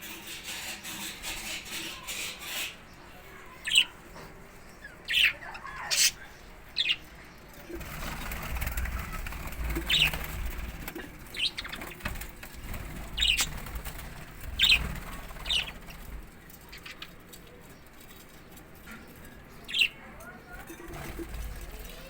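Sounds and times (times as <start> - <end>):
parrot chirping: 4.8 - 7.0, 13.2 - 13.6
fluttering rustling noise: 7.6 - 19.8, 20.5 - 22.0.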